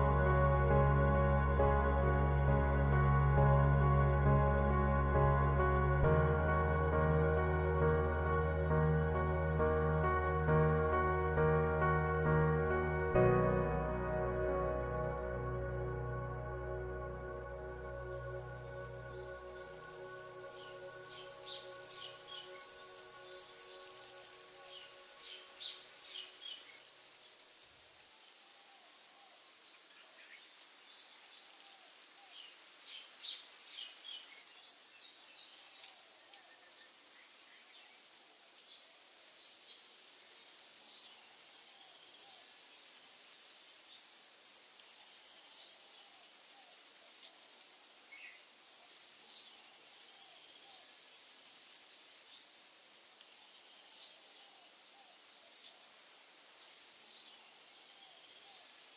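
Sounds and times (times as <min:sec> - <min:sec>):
high insect chorus: 0:16.7 - 0:58.9.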